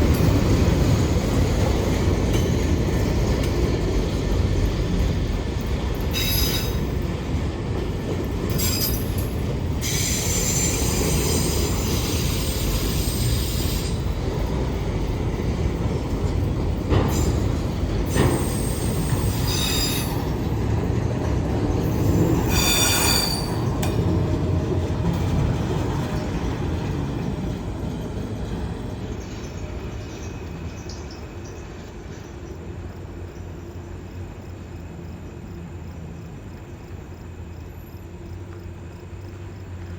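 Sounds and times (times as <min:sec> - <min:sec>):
train wheels rumbling on rail: 0:00.0 - 0:39.9
high-pitched wheel squeal: 0:06.1 - 0:06.9, 0:18.1 - 0:20.3, 0:21.9 - 0:23.7.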